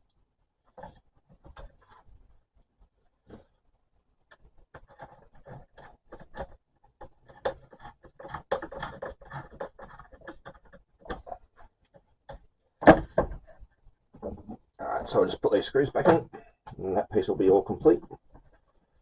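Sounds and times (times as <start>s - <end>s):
parts scraping and knocking: 4.3s - 15.2s.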